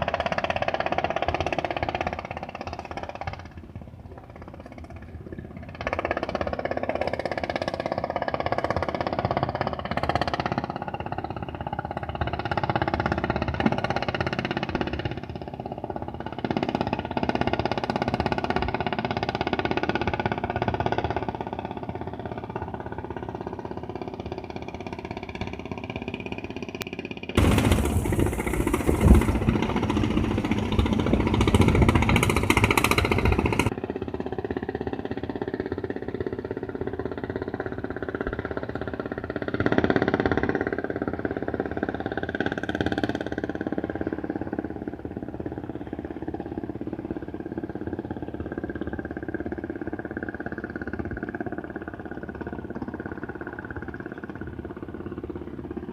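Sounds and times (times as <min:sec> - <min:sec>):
boat engines running: 0:00.0 - 0:55.9
loud rushing noise: 0:27.4 - 0:33.7.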